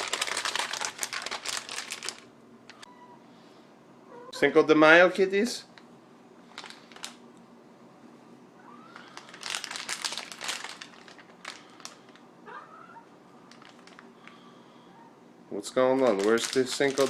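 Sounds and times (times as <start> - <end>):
rustling and crinkling handling: 0.0 - 2.8, 6.4 - 7.2, 8.9 - 12.3, 13.4 - 14.4, 15.7 - 17.0
cat meowing faintly: 2.8 - 3.3, 4.1 - 4.6.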